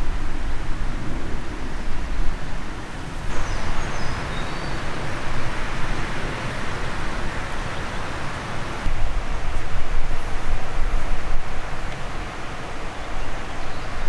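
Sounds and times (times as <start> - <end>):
rushing noise with low rumble: 3.2 - 9.2
faint high bird chirps: 3.3 - 8.9.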